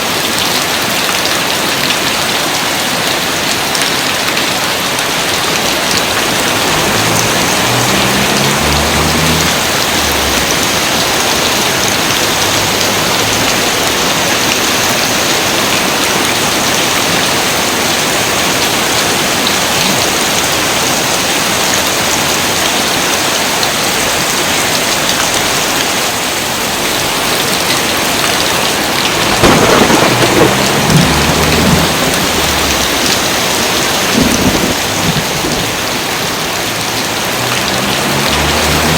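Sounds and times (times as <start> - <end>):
heavy rain falling: 0.0 - 38.9
low thunder rumbles: 6.0 - 13.9, 28.9 - 35.9.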